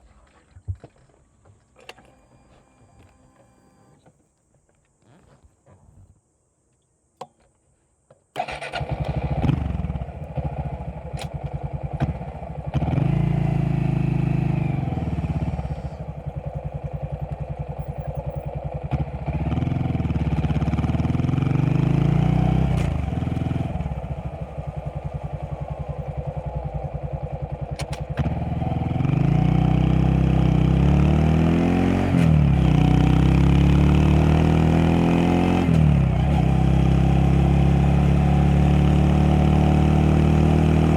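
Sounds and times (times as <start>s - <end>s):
motorcycle engine idling and revving: 8.4s - 40.9s.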